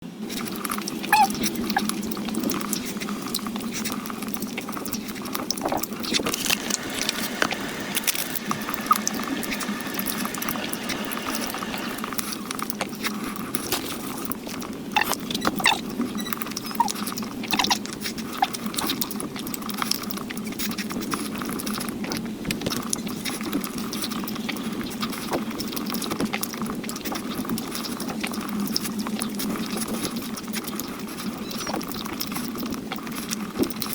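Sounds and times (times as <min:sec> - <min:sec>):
chewing with wet mouth clicks: 0:00.3 - 0:33.9.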